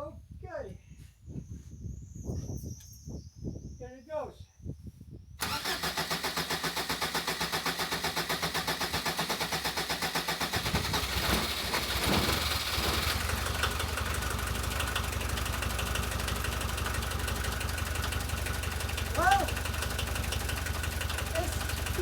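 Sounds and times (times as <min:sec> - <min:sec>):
diesel engine revving and idling: 0:05.4 - 0:22.0
starter cranking diesel engine: 0:05.4 - 0:22.0.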